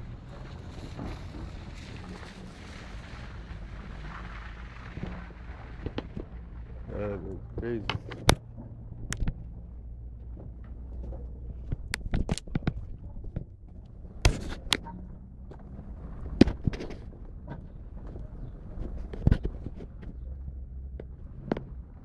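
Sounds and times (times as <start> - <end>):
sharp knocks and clicks: 7.4 - 20.2.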